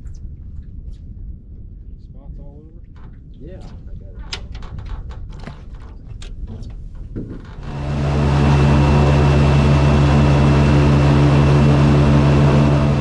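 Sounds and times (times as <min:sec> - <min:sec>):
engine running at speed: 0:07.6 - 0:13.0.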